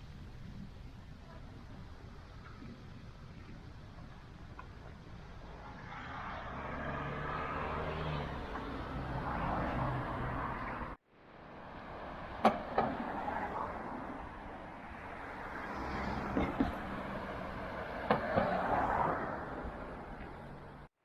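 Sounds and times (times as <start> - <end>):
street noise: 0.0 - 21.0
vehicle engine hum: 0.0 - 21.0.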